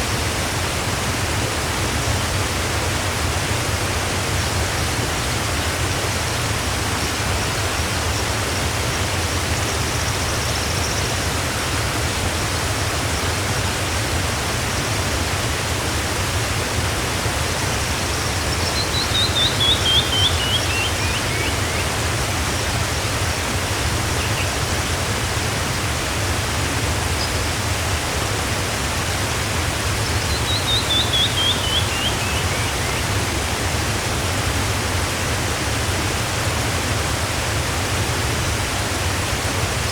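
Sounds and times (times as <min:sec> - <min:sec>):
waterfall rushing: 0:00.0 - 0:39.9
bird singing: 0:18.6 - 0:21.8, 0:30.0 - 0:33.2.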